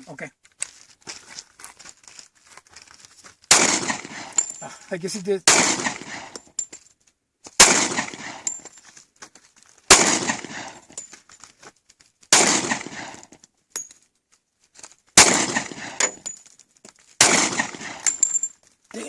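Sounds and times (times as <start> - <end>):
pistol shots: 3.5 - 4.5, 5.4 - 6.4, 7.6 - 8.5, 9.9 - 10.9, 12.3 - 13.2, 15.2 - 16.2, 17.2 - 18.2.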